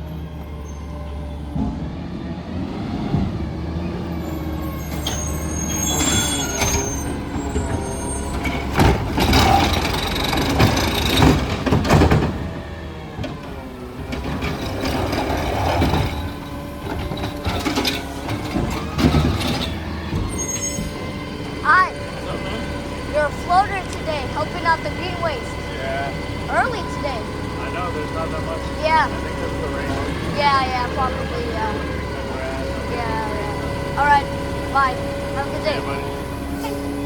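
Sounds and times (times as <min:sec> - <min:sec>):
garbage truck engine running: 0:00.0 - 0:37.0.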